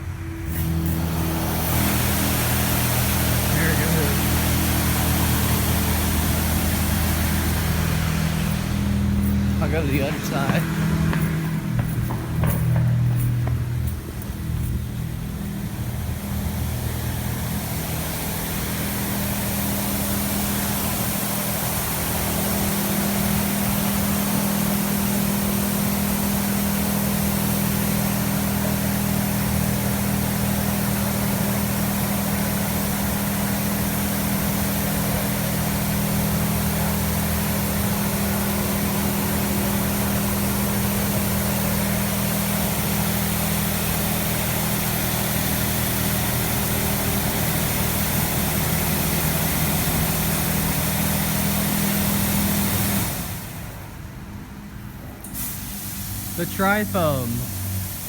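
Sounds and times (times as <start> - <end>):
steady low hum: 0.0 - 22.4
water jets spraying on car: 0.4 - 13.2, 13.8 - 53.8, 55.3 - 56.8.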